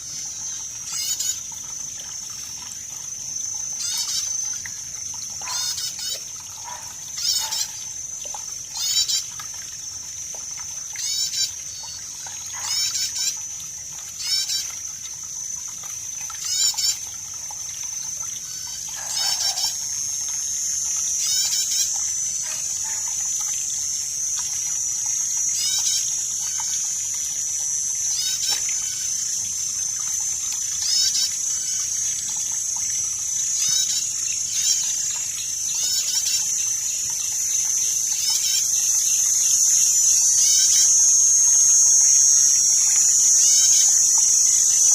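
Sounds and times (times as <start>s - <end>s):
faint trickling water: 0.0s - 44.9s
high-pitched insect drone: 0.0s - 44.9s
chirping animal calls: 6.6s - 7.7s, 18.9s - 19.8s.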